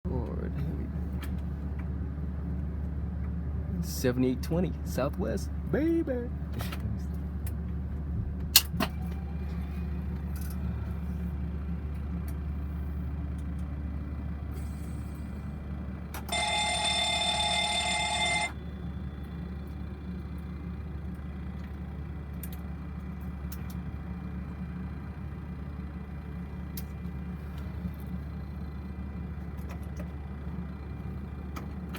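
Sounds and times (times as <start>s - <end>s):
cockpit low hum: 0.1s - 31.9s
electronic alert tone: 16.3s - 18.6s.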